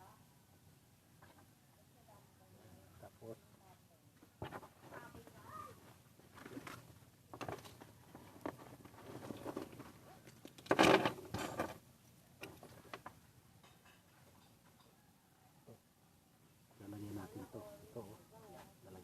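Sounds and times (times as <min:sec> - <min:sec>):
small clicks and knocks: 0:06.4 - 0:11.8, 0:12.4 - 0:15.0
metal parts scraping and rattling: 0:07.4 - 0:11.8.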